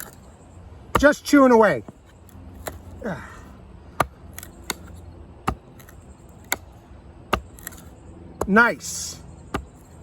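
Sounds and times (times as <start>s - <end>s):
blade chopping into wood: 0.9s - 1.2s, 2.6s - 2.9s, 3.9s - 8.7s, 9.5s - 9.9s.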